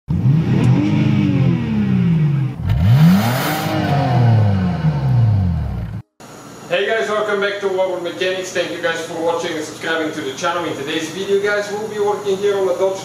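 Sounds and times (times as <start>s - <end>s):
car engine revving: 0.1s - 6.1s.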